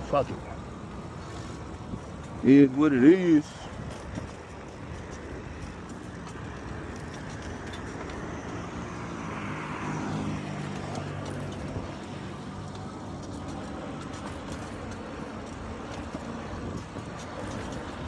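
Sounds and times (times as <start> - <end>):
background traffic: 0.0 - 18.0
car driving past: 7.1 - 15.0.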